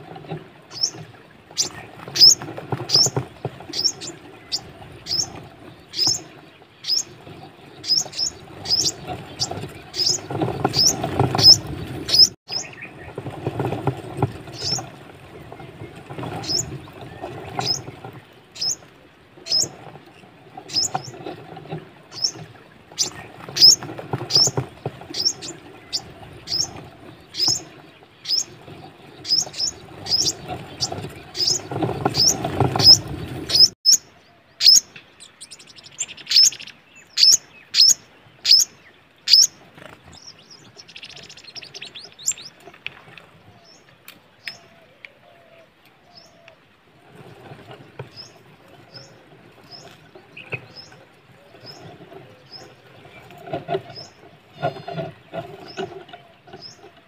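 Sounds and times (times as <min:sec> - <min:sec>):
small bird chirping: 0:07.8 - 0:12.9, 0:29.2 - 0:38.7.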